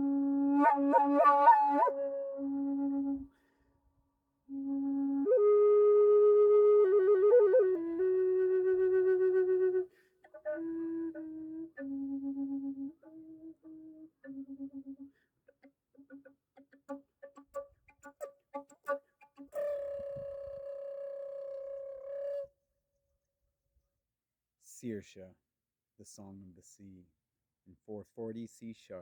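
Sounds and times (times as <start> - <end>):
wooden flute melody: 0.0 - 3.5, 4.5 - 22.6.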